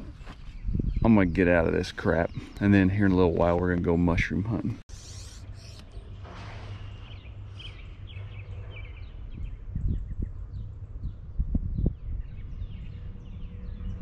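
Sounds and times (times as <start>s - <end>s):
small birds chirping: 0.0s - 6.2s, 6.8s - 14.0s
steady low rumble: 6.0s - 14.0s.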